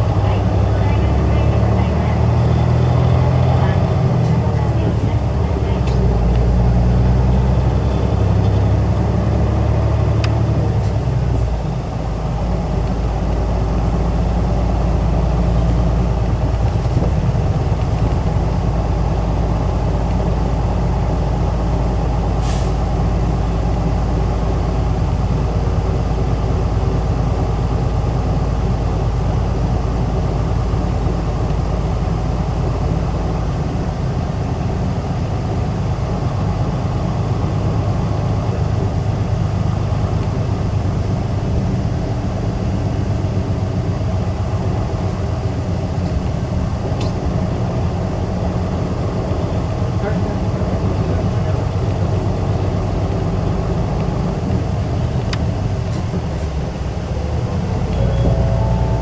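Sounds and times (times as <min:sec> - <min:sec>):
bus diesel engine running: 0:00.0 - 0:59.0
short air hiss: 0:22.4 - 0:22.8.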